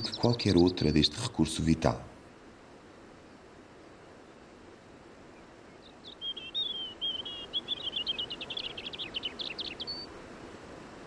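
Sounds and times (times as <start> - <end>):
small songbird singing: 0.0 - 1.6, 5.4 - 10.1
faint outdoor ambience: 0.0 - 11.0.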